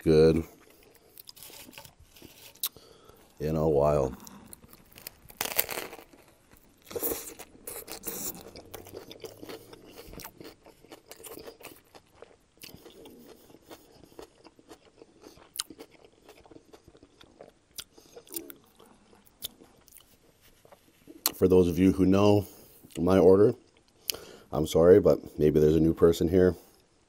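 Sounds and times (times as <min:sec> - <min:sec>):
crunchy bites and chewing: 0:00.4 - 0:21.4.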